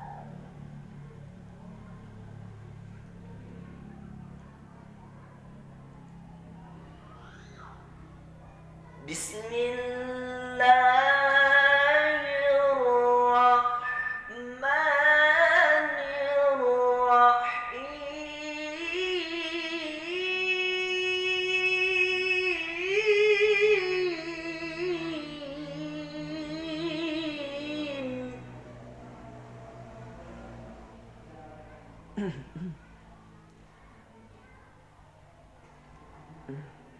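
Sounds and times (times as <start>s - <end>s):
person reciting melodically: 9.0s - 28.6s.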